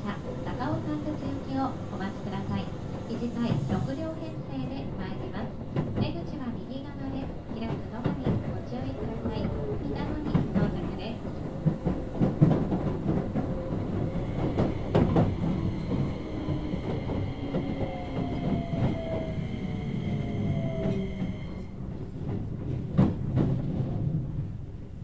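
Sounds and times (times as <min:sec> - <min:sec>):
wheel and rail rumble: 0:00.0 - 0:24.9
electric train motor whine: 0:13.6 - 0:21.8.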